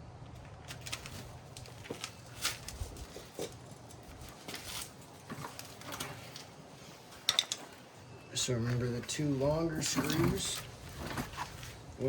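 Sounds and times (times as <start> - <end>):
clicks and taps of tools: 7.3 - 7.7.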